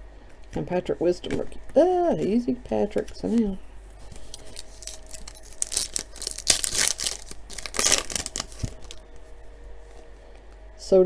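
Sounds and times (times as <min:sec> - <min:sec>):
wrapper tearing and crinkling: 0:04.1 - 0:09.3.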